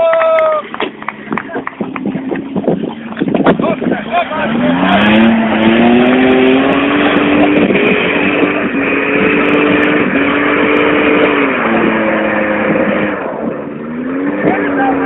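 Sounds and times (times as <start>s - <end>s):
engine revving hard: 3.6s - 15.0s.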